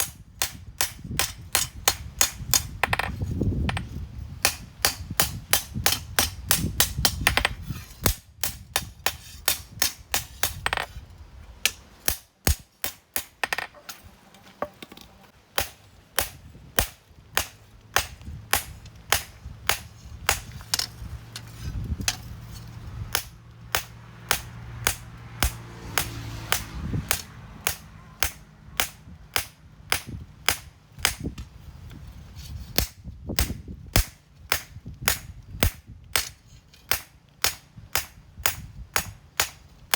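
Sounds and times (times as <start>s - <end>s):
hammer striking steel on anvil: 11.6s - 14.1s.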